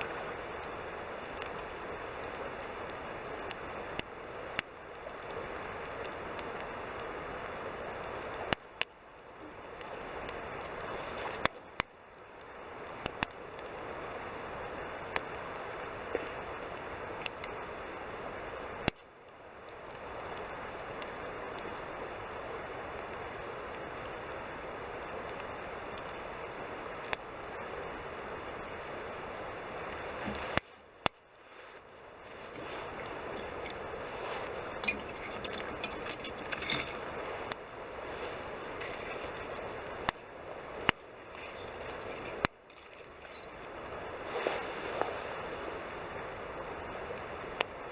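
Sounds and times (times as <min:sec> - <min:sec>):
campfire crackling: 0:00.0 - 0:47.9
fire popping: 0:00.0 - 0:47.9
sharp fire pops: 0:32.5 - 0:43.6
rushing hiss: 0:43.5 - 0:47.1.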